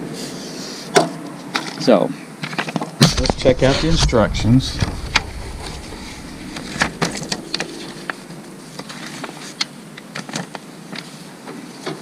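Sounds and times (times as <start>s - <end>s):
faint steady hum: 3.0s - 10.5s.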